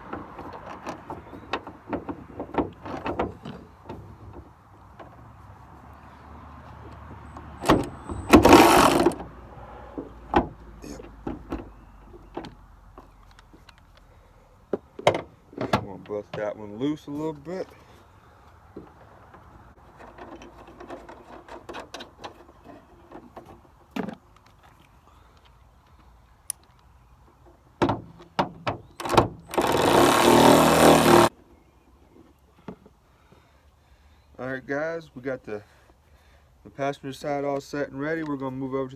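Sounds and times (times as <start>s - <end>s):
hand ratchet ratcheting: 7.6s - 9.2s, 29.0s - 31.3s
loud rattling tool: 7.6s - 9.2s, 29.0s - 31.3s.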